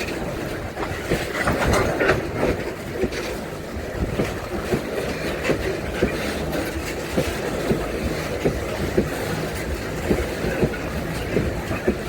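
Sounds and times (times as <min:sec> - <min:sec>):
strong wind: 0:00.0 - 0:06.8
wheels clicking over rail joints: 0:00.0 - 0:12.0.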